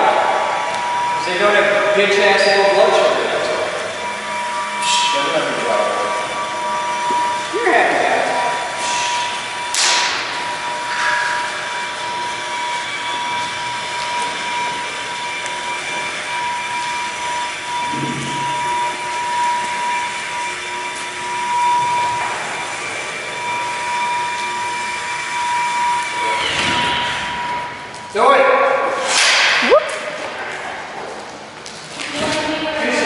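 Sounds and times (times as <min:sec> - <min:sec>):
machine whine: 0:00.0 - 0:33.0.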